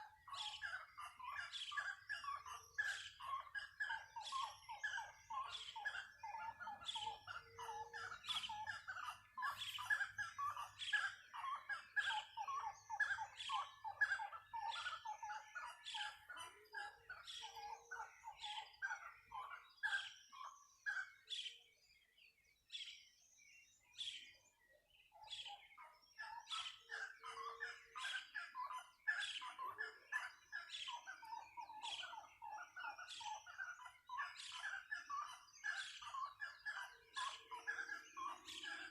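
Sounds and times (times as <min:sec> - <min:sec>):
chorus of birds chirping: 0:00.0 - 0:38.9.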